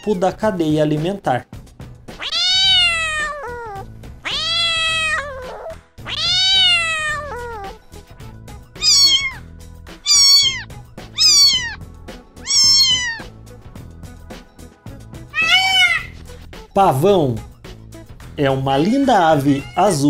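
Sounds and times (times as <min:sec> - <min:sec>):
cat meowing: 0:02.1 - 0:07.8, 0:08.8 - 0:11.8, 0:12.4 - 0:13.4, 0:15.3 - 0:16.2, 0:19.4 - 0:20.0.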